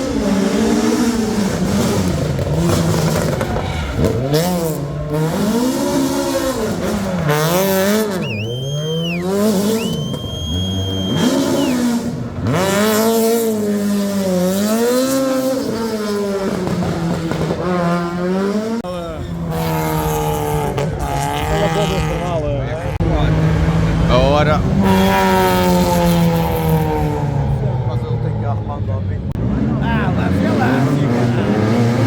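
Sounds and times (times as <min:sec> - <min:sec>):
high tyre squeal: 0:00.0 - 0:13.7, 0:17.6 - 0:22.3
rally car engine revving: 0:00.0 - 0:32.0.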